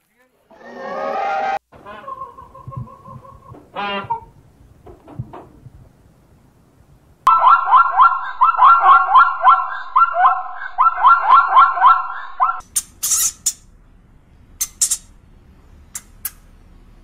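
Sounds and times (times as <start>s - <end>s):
zebra barking yelps: 0.7s - 4.4s, 7.3s - 12.6s.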